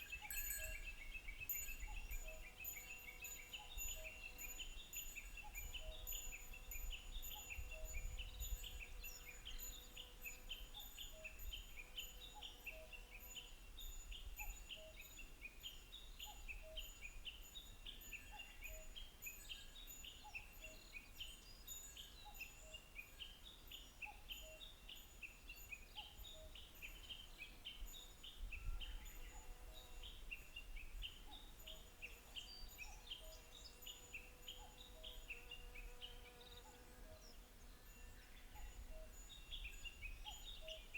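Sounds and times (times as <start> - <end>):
wind on microphone: 6.9 - 9.1.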